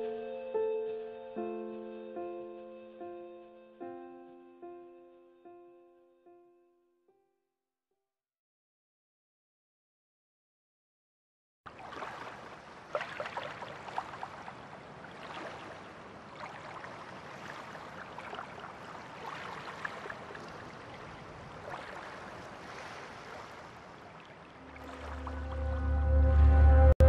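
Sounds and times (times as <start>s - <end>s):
stream running over stones: 11.7s - 25.6s
music with deep bass: 25.2s - 27.0s.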